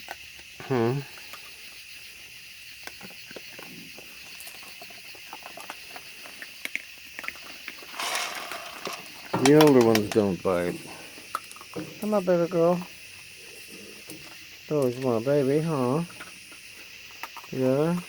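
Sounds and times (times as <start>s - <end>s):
raccoons chewing and tapping: 0.0s - 18.0s.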